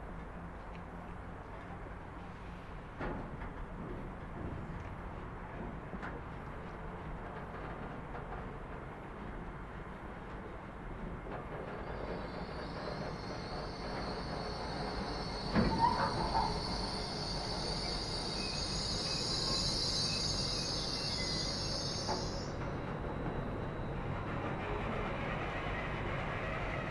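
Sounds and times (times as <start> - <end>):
rail rumble: 0.0 - 26.9
train wheel squeal: 10.0 - 26.9.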